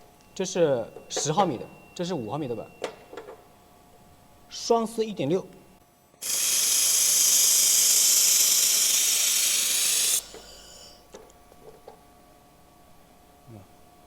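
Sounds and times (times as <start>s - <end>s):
laser welder hissing: 6.2s - 11.0s.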